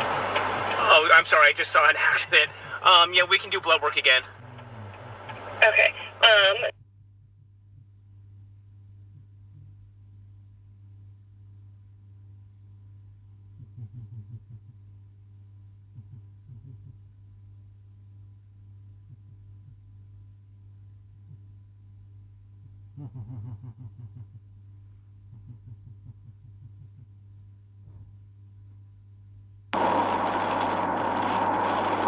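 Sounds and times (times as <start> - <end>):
faint rapid muffled pulses: 0.0 - 6.7, 29.8 - 32.0
steady low hum: 0.0 - 6.7, 29.8 - 32.0.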